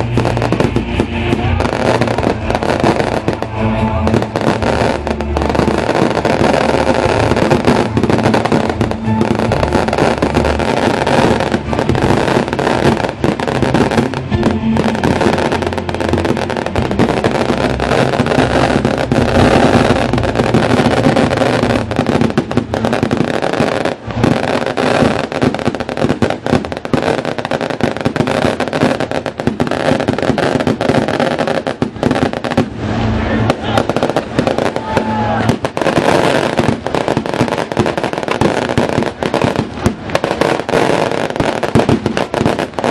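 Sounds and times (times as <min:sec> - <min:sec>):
festival music: 0:00.0 - 0:42.9
fireworks crackling and popping: 0:00.0 - 0:42.9.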